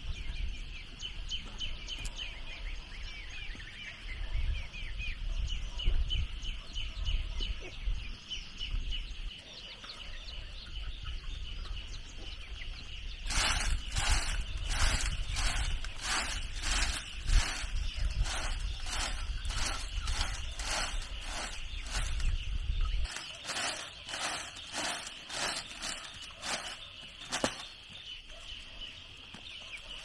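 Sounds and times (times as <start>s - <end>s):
birds chirping: 9.4s - 30.0s
rhythmic scraping strokes: 13.3s - 22.4s, 23.0s - 27.8s.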